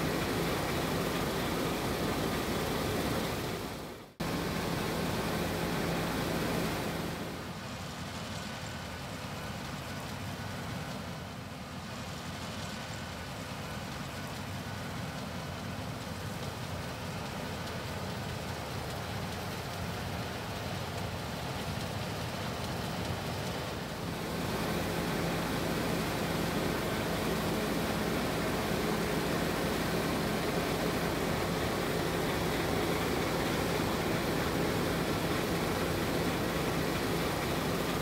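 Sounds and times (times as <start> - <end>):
combine harvester engine hum: 0.0 - 38.0
even rushing noise: 24.0 - 38.0.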